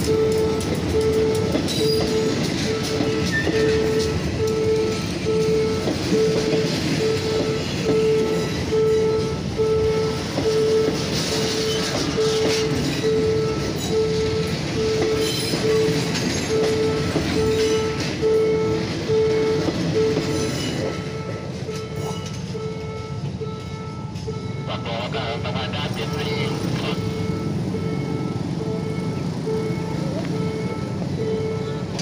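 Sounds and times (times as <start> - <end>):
train wheels clattering over rails: 0.0 - 8.7, 10.1 - 22.6
electronic warning signal beeping: 0.0 - 31.9.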